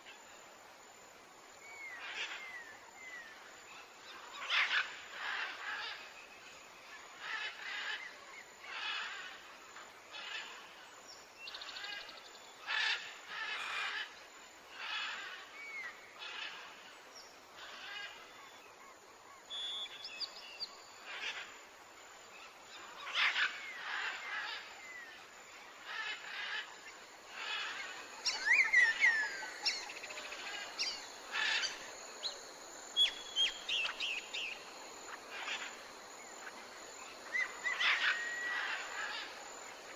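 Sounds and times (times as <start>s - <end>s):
whistled bird chirps: 19.5s - 20.4s.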